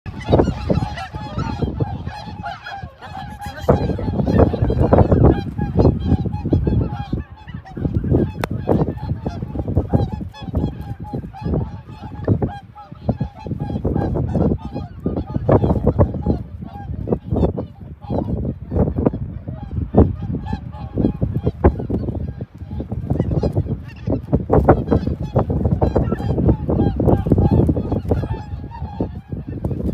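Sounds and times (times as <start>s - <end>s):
flock of waterfowl honking: 0.1s - 29.9s.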